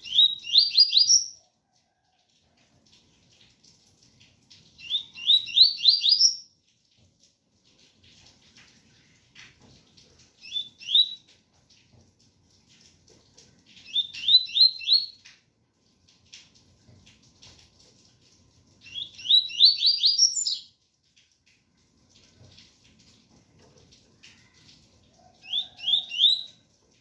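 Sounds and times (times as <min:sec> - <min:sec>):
bird singing whistled notes: 0:00.0 - 0:01.4, 0:04.8 - 0:06.4, 0:10.4 - 0:11.2, 0:13.8 - 0:15.2, 0:18.9 - 0:20.7, 0:25.5 - 0:26.6
faint rain patter: 0:00.0 - 0:27.0.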